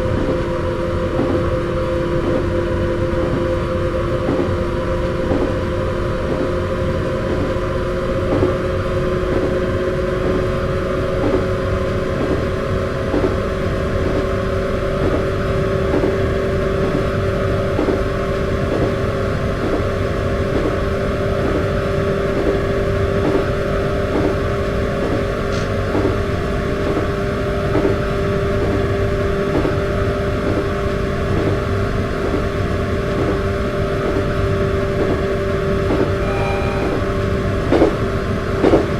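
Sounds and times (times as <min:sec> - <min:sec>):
electric train motors whining: 0:30.3 - 0:38.0
low rumble: 0:35.9 - 0:37.7.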